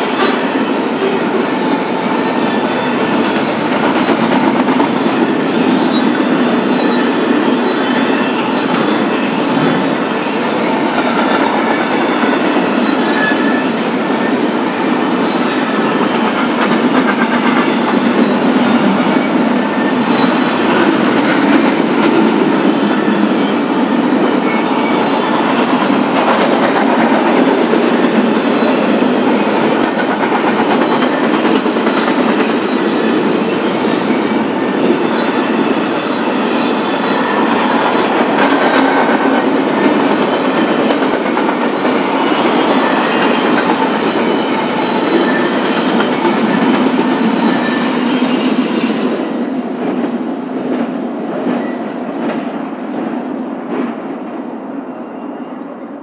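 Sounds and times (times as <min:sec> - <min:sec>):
steel wheels rumbling on rail: 0:00.0 - 0:56.0
wheels clickety-clack over joints: 0:03.0 - 0:35.1, 0:37.4 - 0:47.6
faint high squeal: 0:05.6 - 0:16.2, 0:42.1 - 0:49.4, 0:54.7 - 0:56.0.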